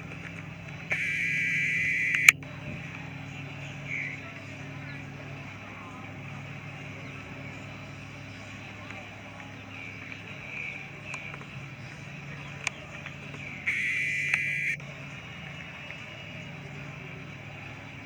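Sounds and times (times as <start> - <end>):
boat motor humming: 0.0 - 18.0
sharp clicks: 0.9 - 2.4, 13.7 - 14.8.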